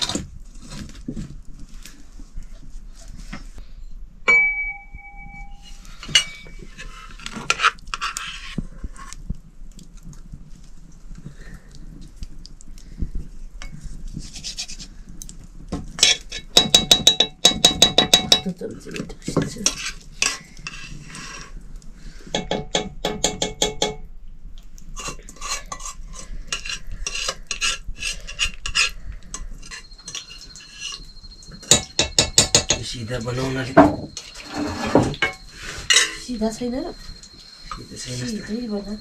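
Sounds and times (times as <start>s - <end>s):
metal spoon scraping a pot: 5.2s - 9.2s, 13.6s - 14.9s, 16.0s - 21.6s, 25.0s - 39.0s.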